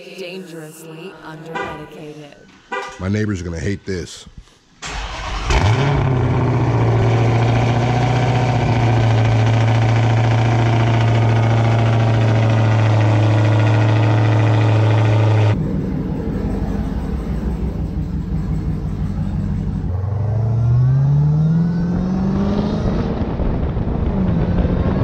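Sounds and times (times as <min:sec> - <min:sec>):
car engine idling loudly: 0:05.6 - 0:20.0.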